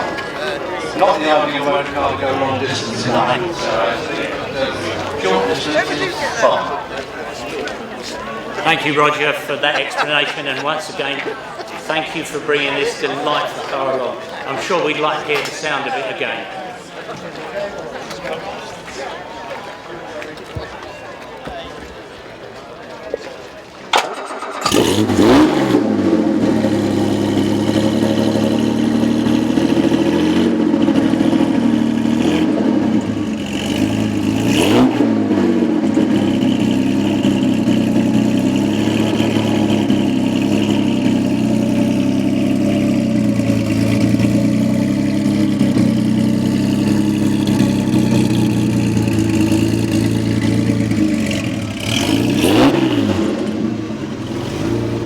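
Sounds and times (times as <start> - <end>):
car engine idling and revving: 0.0 - 9.1, 24.0 - 55.0.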